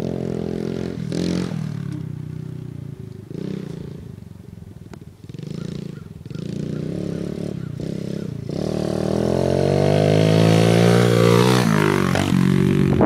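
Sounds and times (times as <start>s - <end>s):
pit bike engine revving: 0.0s - 4.2s, 5.2s - 13.0s.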